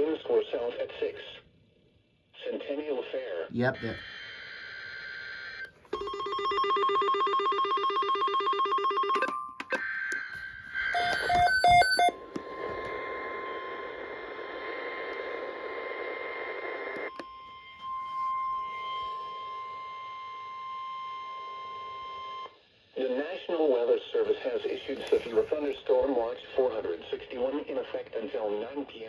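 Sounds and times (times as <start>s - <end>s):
warbling alarm: 3.8s - 14.4s, 17.0s - 22.5s
electronic alert tones: 10.8s - 12.2s
short beeps: 10.8s - 12.2s
radio static: 12.3s - 17.1s, 23.0s - 29.0s.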